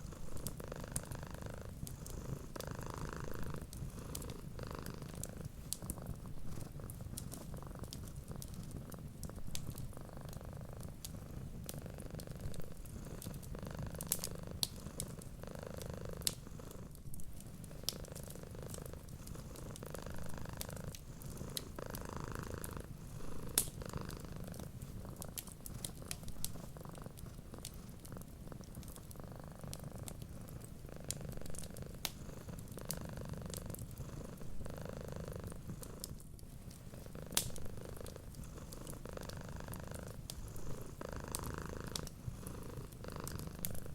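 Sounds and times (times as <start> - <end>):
cat purring: 0.0 - 43.9
wood fire crackling: 3.5 - 15.4, 16.2 - 22.0, 22.6 - 34.7, 35.4 - 43.9.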